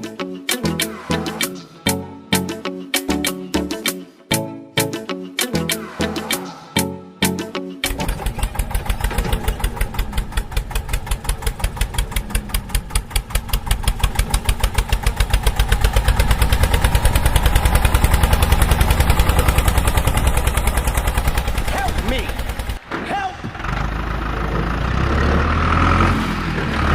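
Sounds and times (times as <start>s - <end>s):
small tractor engine pulsing: 7.8s - 26.9s.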